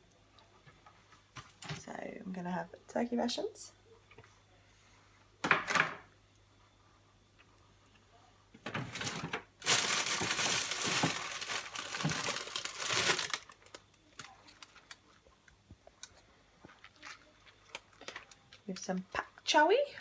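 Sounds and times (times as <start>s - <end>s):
food packaging crinkling: 8.9s - 15.3s, 16.0s - 18.7s.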